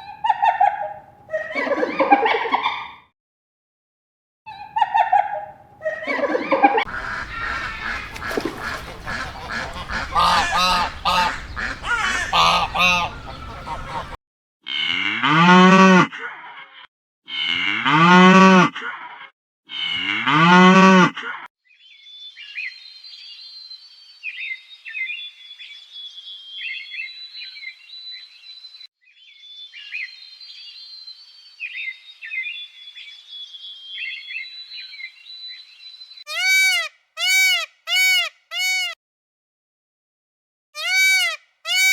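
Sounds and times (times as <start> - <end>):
fowl honking and calling: 6.9 - 14.2
short animal calls: 6.9 - 14.2.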